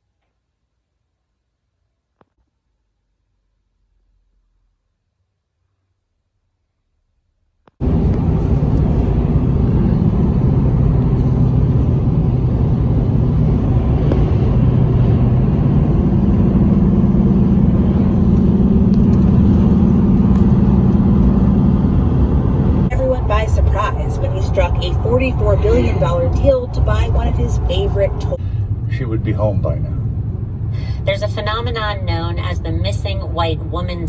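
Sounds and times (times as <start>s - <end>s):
vehicle engine low rumble: 7.8s - 34.0s.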